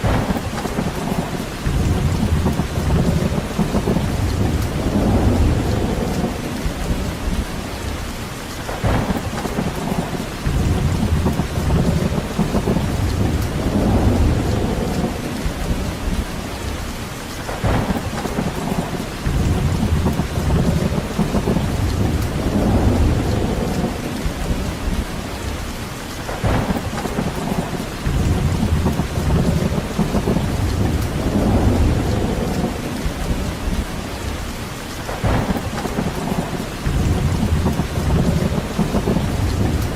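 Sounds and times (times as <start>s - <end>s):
steady rain: 0.0s - 39.9s
low rumble: 1.6s - 8.1s, 10.4s - 16.7s, 19.2s - 25.4s, 28.0s - 34.4s.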